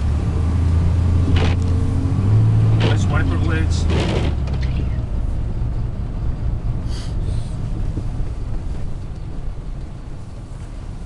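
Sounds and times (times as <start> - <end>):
diesel engine rumble: 0.0 - 11.0
road noise: 0.0 - 11.0
short hisses: 6.8 - 7.6.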